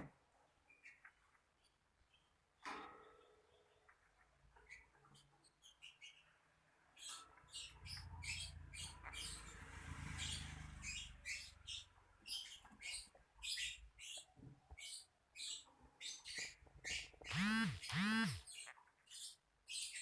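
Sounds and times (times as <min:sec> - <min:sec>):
lovebird chirping: 0:07.0 - 0:20.0.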